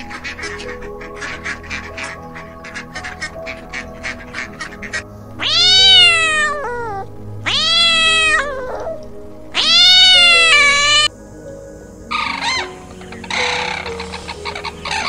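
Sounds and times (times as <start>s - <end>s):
cat meowing: 5.4s - 11.1s.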